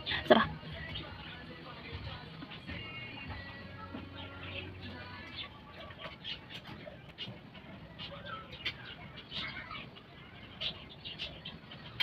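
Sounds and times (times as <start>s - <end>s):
bird chirps: 2.4s - 12.0s.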